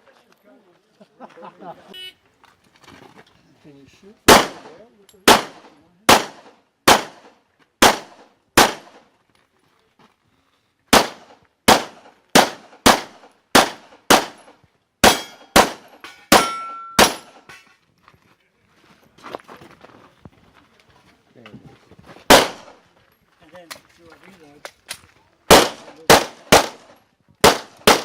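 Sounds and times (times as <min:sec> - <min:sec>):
pistol shots: 0:04.3 - 0:09.0, 0:10.9 - 0:17.5, 0:22.3 - 0:22.8, 0:25.5 - 0:28.0.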